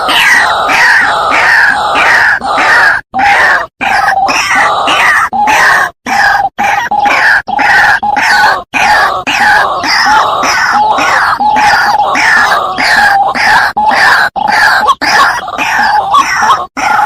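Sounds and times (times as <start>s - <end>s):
waterhen harsh repeated calls: 0.0s - 17.0s.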